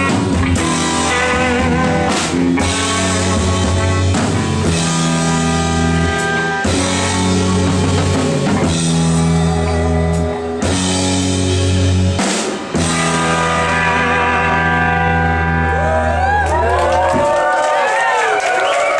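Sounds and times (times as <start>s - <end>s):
drum kit hits: 0.0s - 15.2s
electric guitars: 0.0s - 17.5s.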